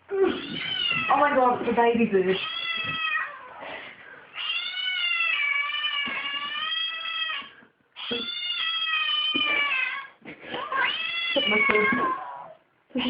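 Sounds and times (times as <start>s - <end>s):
cat yowling: 4.4s - 12.6s.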